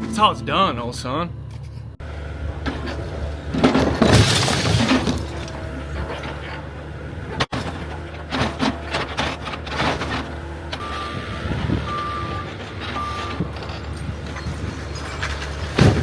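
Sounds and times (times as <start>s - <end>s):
excavator diesel engine: 0.0s - 16.0s
debris crashing: 2.7s - 6.5s, 12.7s - 16.0s.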